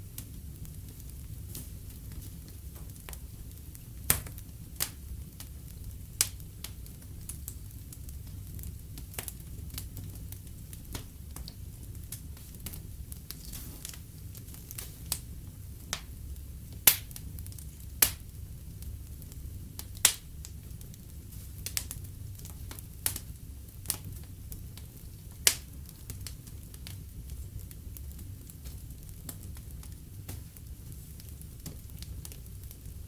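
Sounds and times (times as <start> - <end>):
fire crackling and popping: 0.0 - 33.0
low rumble of burning: 0.0 - 33.0.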